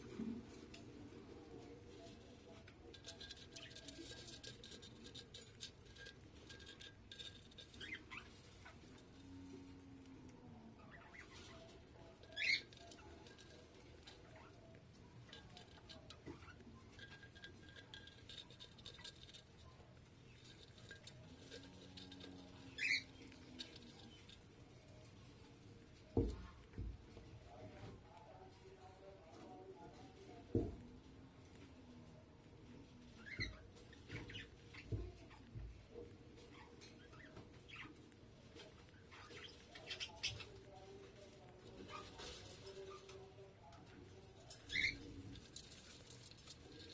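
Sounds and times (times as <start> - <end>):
bird chick peeping and squeaking: 1.0 - 27.0, 32.4 - 46.9
small rustling clicks: 11.0 - 26.8, 43.8 - 46.9.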